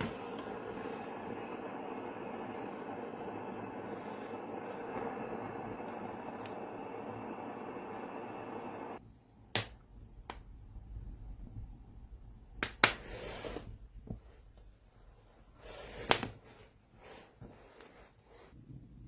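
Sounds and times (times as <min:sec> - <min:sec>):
steady noise: 0:00.0 - 0:09.0.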